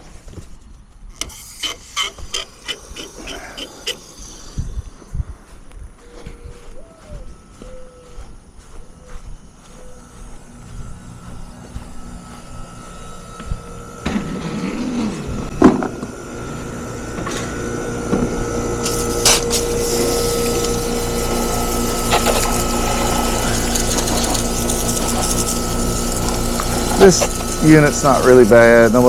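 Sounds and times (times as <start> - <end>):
steady hum: 0.0 - 29.0
garden hose spraying water: 1.2 - 5.0, 17.0 - 29.0.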